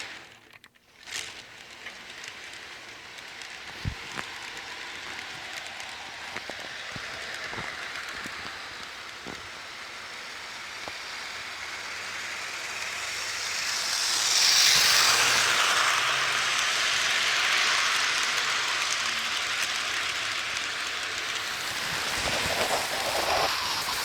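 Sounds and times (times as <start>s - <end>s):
model train wheels rolling: 0.0s - 24.0s
sharp clicks of track: 0.0s - 24.0s.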